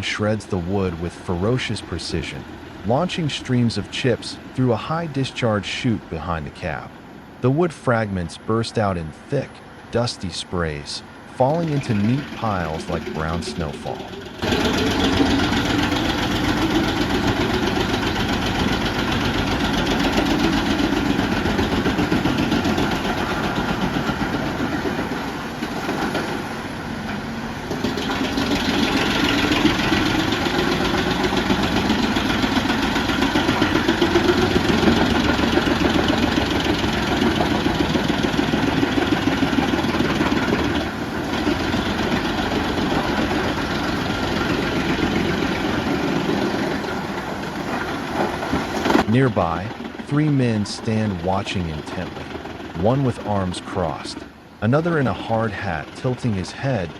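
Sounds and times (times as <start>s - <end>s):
heavy engine under load: 0.0s - 53.2s
wood chipper drum shredding branches: 11.9s - 50.1s.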